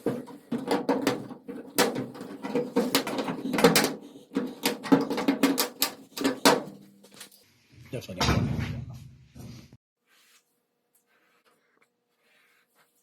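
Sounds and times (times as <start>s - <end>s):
knocks on sheet metal panel: 0.0s - 6.8s.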